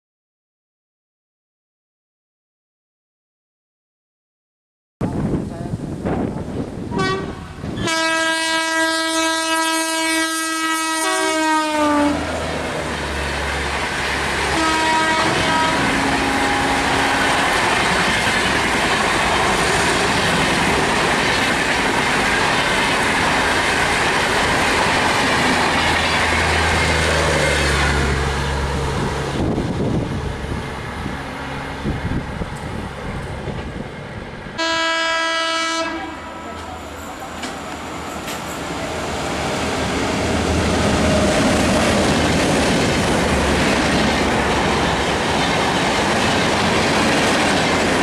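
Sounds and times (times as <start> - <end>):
train wheels rushing on rails: 5.1 - 48.0
train horn blast: 6.9 - 12.4, 14.4 - 17.6, 34.6 - 36.9.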